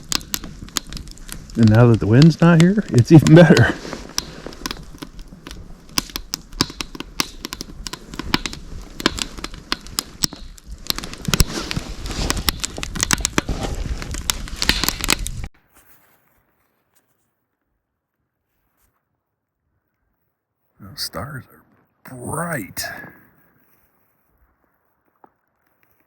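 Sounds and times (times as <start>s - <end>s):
wood fire crackling: 0.0s - 15.6s, 20.8s - 26.0s.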